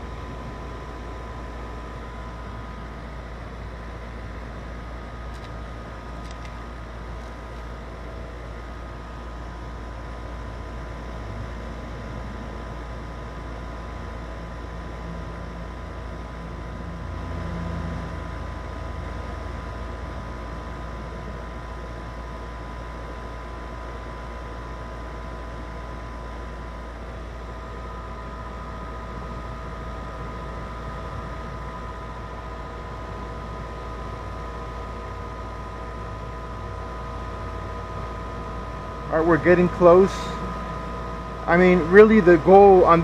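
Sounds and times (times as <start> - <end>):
compressor hum: 0.0 - 43.0
condenser fan noise: 0.0 - 43.0
steady whining tones: 26.0 - 43.0.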